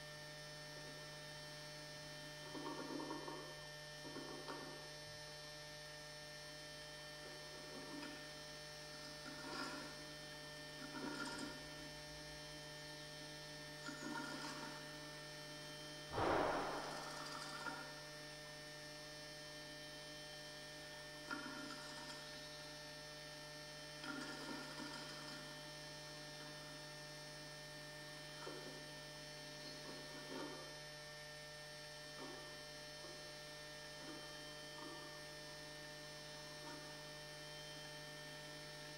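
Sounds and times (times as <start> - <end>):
electrical hum: 16.2 - 17.7.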